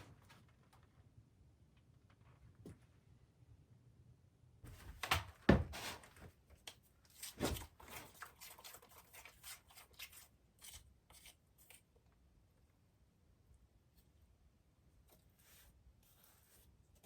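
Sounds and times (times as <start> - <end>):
objects being handled: 4.7 - 11.8.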